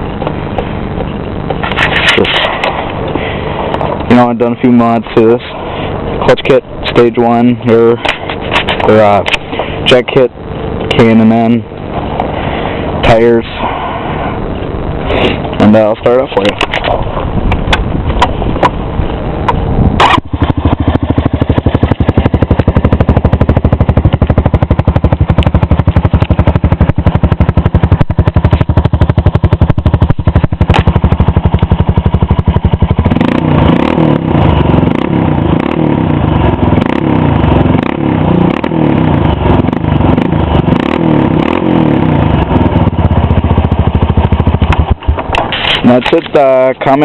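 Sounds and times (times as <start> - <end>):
atv engine running and revving: 16.4 - 46.5.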